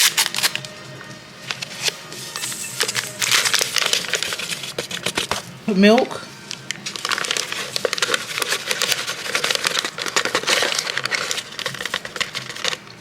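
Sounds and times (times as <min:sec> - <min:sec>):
bags tearing open: 0:00.0 - 0:00.7, 0:02.8 - 0:05.3, 0:06.8 - 0:12.8
packaging crackling and crinkling: 0:02.8 - 0:13.0.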